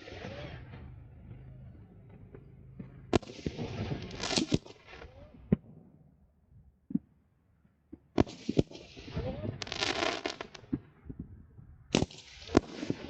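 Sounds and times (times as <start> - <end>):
firework crackling: 0.0 - 0.7, 3.1 - 5.4, 8.2 - 10.8, 11.9 - 13.0
firework bangs: 2.8 - 6.0, 8.1 - 11.2, 11.9 - 13.0.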